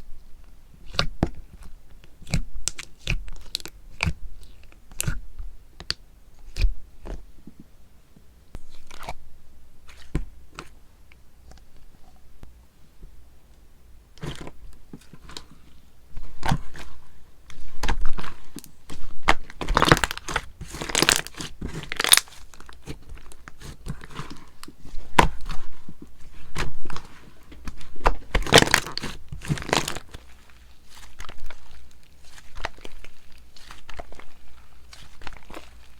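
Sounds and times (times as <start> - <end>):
slime crackling and crunching: 0.8 - 5.2, 16.2 - 35.9.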